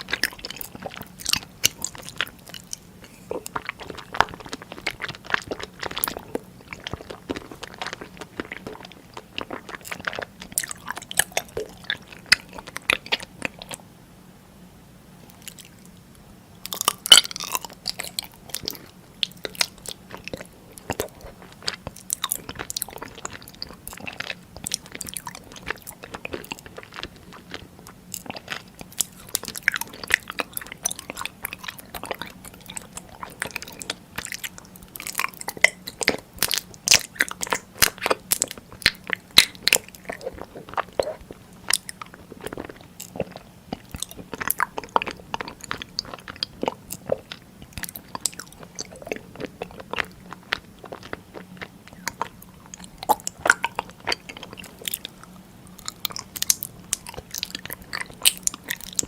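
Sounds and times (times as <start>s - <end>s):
crunching and chewing snacks: 0.0s - 13.8s, 16.6s - 59.0s
faint steady hum: 0.0s - 59.0s.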